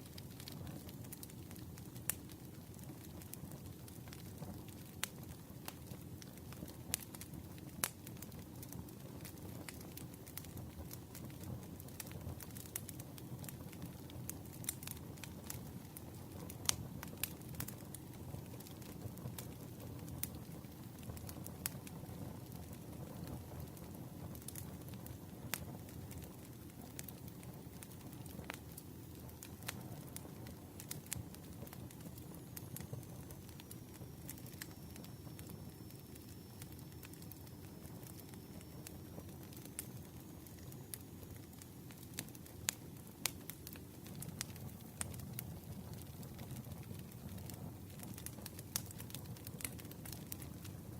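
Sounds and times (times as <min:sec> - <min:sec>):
burning wood crackling and popping: 0:00.0 - 0:50.9
low rumble of flames: 0:00.0 - 0:50.9
faint high whine: 0:29.2 - 0:46.4.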